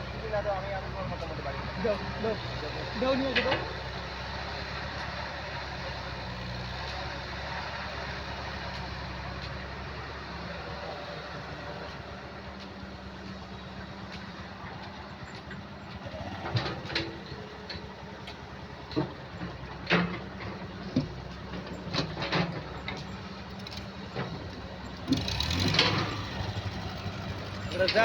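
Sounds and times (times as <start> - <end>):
tractor diesel engine running: 0.0 - 28.0
irregular knocks and clatters: 13.9 - 28.0.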